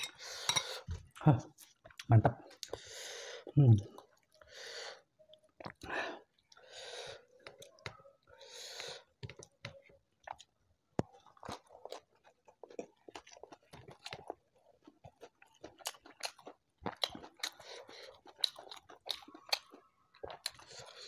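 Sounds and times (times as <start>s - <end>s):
wet chewing and lip smacks: 8.8s - 21.0s.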